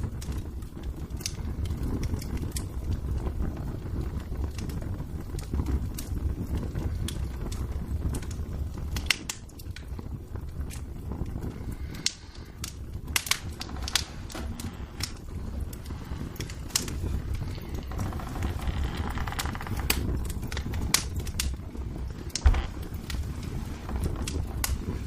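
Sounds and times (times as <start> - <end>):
sharp fire pops: 0.0 - 25.0
wood fire crackling: 0.0 - 25.0.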